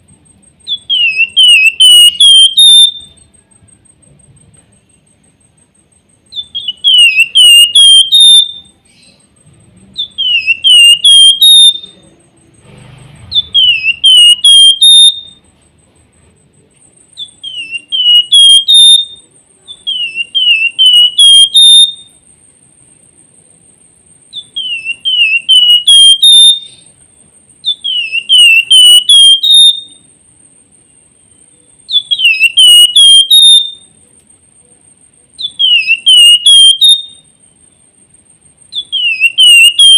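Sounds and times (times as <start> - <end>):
bird singing whistled phrases: 0.6 - 3.3, 6.3 - 9.3, 10.0 - 12.1, 13.3 - 15.4, 17.2 - 22.2, 24.3 - 26.9, 27.6 - 30.1, 31.2 - 34.0, 35.4 - 37.3, 38.7 - 39.9.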